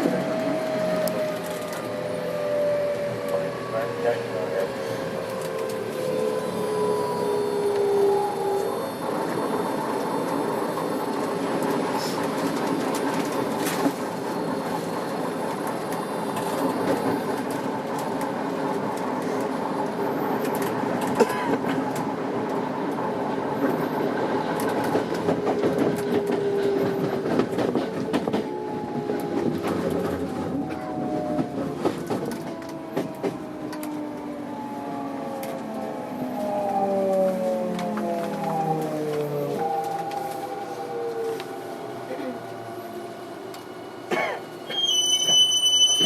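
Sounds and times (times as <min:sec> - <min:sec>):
electric train motor whine: 0:27.6 - 0:46.0.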